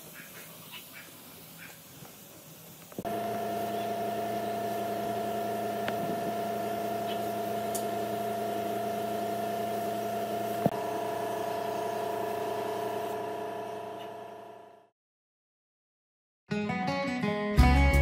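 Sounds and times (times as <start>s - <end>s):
steady machine hum: 3.0s - 14.9s.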